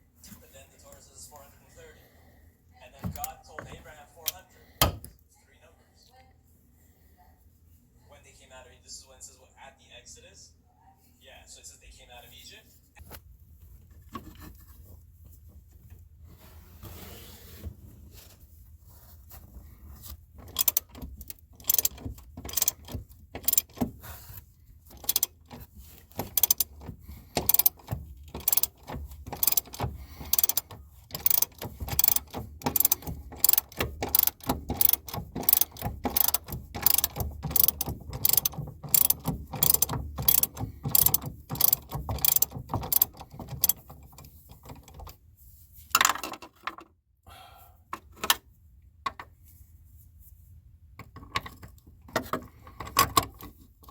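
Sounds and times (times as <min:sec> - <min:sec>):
ratchet wrench clicking: 0:20.4 - 0:23.9, 0:24.9 - 0:44.0.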